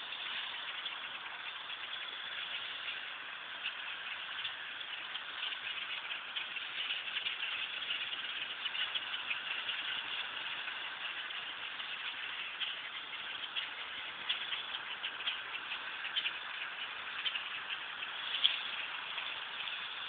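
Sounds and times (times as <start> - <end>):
flock of birds chattering: 0.0 - 20.0.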